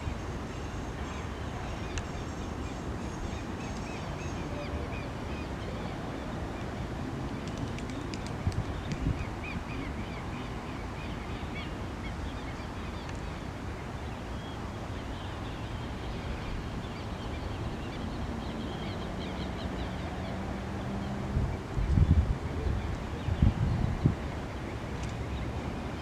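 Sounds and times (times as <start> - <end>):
wind rumble on microphone: 0.0 - 10.6, 14.9 - 26.0.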